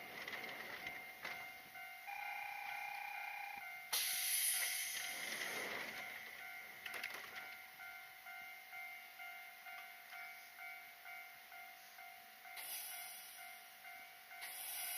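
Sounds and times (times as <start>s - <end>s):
level crossing bell ringing: 0.8s - 3.9s
train air hiss: 3.9s - 5.9s, 11.8s - 13.7s, 14.4s - 14.9s.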